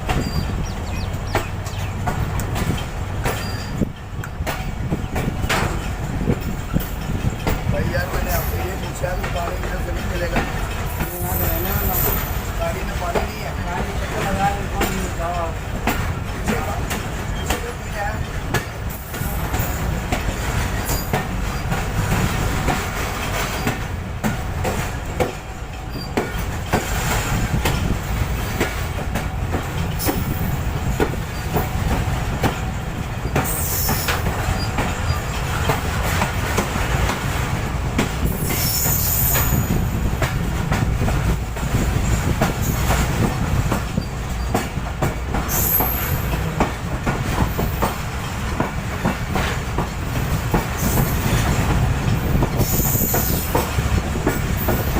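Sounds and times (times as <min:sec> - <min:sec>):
train low rumble: 0:00.0 - 0:54.9
train wheels clacking over rails: 0:00.0 - 0:54.9.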